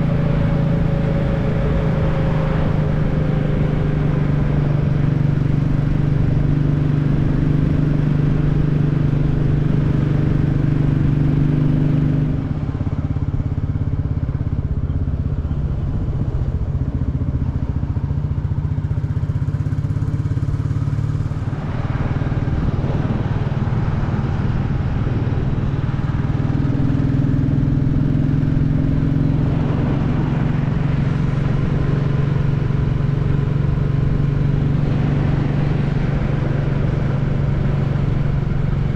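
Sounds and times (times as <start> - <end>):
motorcycle engine running: 0.0 - 38.9
road noise: 0.0 - 38.9
wind noise: 21.4 - 27.1.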